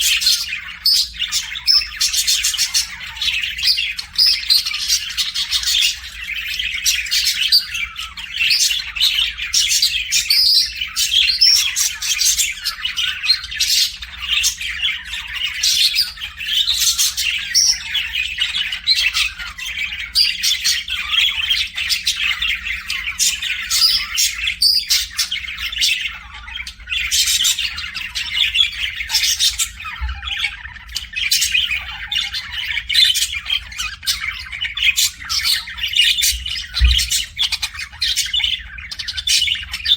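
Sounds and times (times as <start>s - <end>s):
small birds chirping and squawking: 0.0s - 39.9s.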